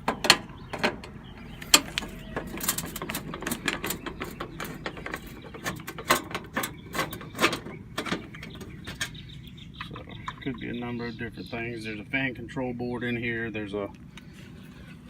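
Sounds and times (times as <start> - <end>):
metal tools and panels clattering: 0.0 - 9.2.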